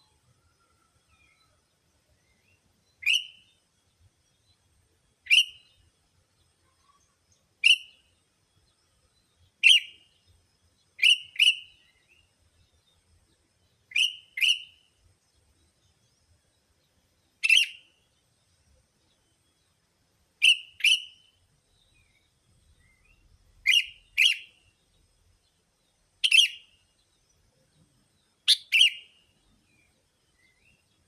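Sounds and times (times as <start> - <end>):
bulbul sharp calls: 3.0 - 3.4, 11.0 - 11.7, 13.9 - 14.8, 17.4 - 17.8, 20.4 - 21.2, 23.6 - 24.6, 26.2 - 26.7, 28.5 - 29.2.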